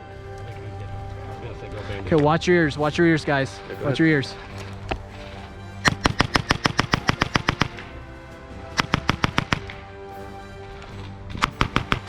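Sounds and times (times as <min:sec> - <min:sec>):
background music: 0:00.0 - 0:12.0
automatic gunfire bursts: 0:08.8 - 0:09.7.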